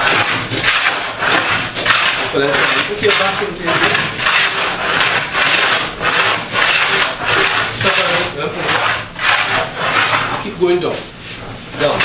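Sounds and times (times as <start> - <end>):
hand plane rasping across wood: 0.0 - 11.0.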